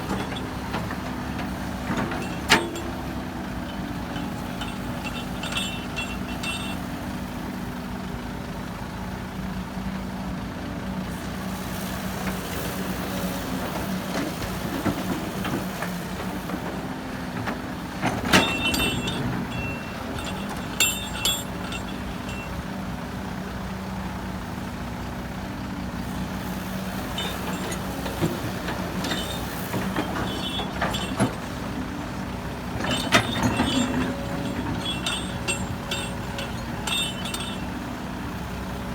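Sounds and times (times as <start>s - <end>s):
diesel machinery engine running: 0.0s - 38.9s
sharp knocks and squeals: 2.0s - 6.8s, 18.0s - 22.6s, 27.2s - 31.7s, 32.7s - 37.8s.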